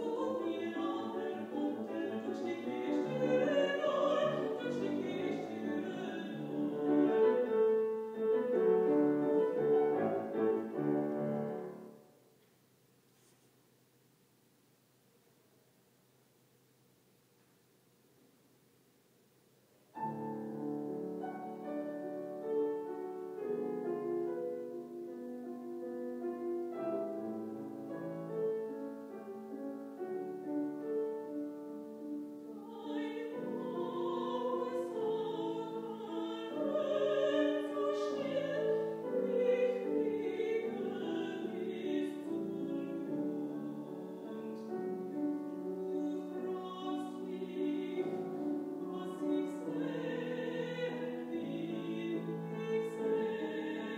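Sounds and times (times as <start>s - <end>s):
woman singing operatically: 0.0s - 7.5s, 32.5s - 53.9s
piano accompaniment: 0.0s - 12.2s, 20.0s - 53.9s.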